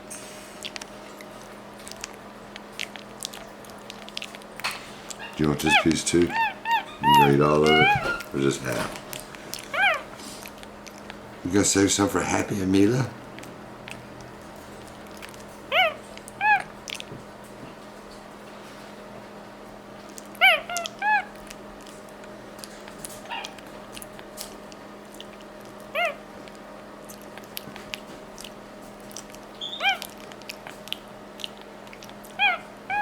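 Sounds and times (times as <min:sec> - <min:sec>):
chewing and lip-smacking clicks: 0:00.6 - 0:05.4, 0:09.1 - 0:11.2, 0:13.3 - 0:17.2, 0:20.0 - 0:32.5
monkey squeaky chirps: 0:05.1 - 0:08.4, 0:09.7 - 0:10.0, 0:29.6 - 0:30.1.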